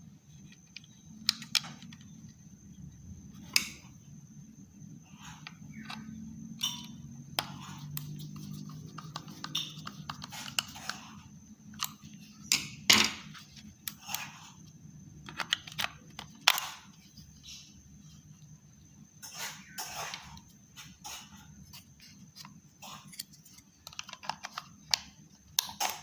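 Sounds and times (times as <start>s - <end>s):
plastic mouse being handled: 7.4s - 12.3s, 15.2s - 17.3s, 21.7s - 25.2s.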